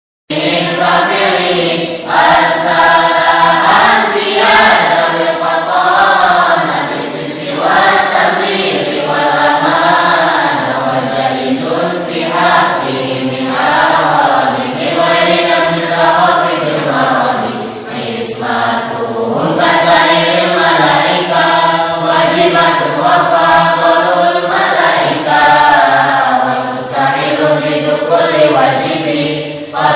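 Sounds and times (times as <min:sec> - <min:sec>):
group of voices chanting: 0:00.3 - 0:29.9.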